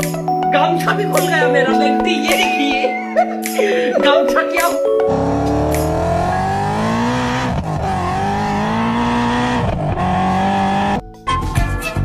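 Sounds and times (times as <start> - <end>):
car engine accelerating: 5.1 - 11.0.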